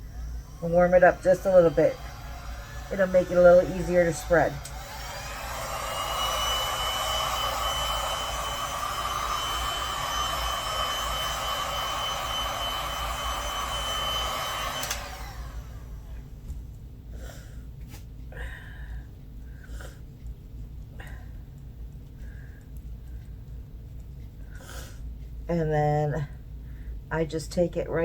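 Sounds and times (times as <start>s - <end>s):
heat gun blowing with high whine: 0.0s - 16.1s.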